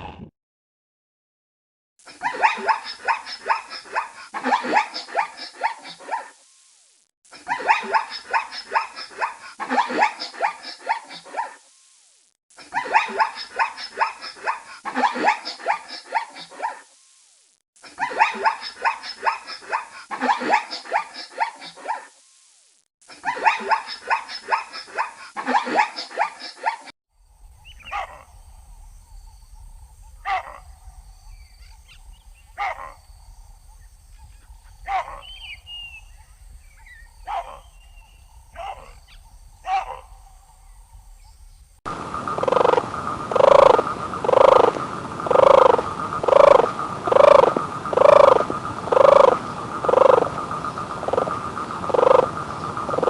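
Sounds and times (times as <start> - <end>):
animal calls: 2.1 - 6.4, 7.4 - 11.6, 12.6 - 16.9, 17.8 - 22.1, 23.2 - 26.9, 27.6 - 28.4, 30.0 - 33.0, 33.8 - 40.6, 41.9 - 53.0
faint low hum: 27.2 - 43.7.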